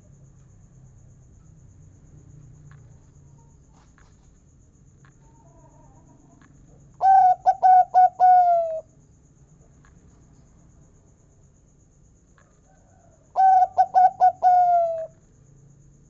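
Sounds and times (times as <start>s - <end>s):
dove cooing: 7.0s - 8.9s, 13.4s - 15.1s.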